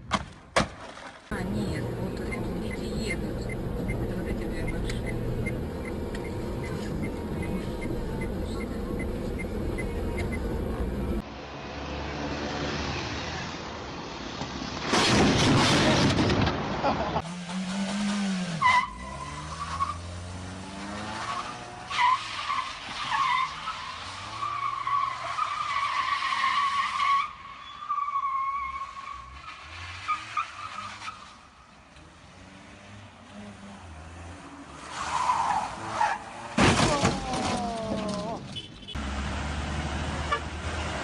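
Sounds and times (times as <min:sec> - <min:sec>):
engine and road noise: 0:00.0 - 0:41.0
car tyres squealing: 0:18.5 - 0:31.6, 0:34.7 - 0:38.9.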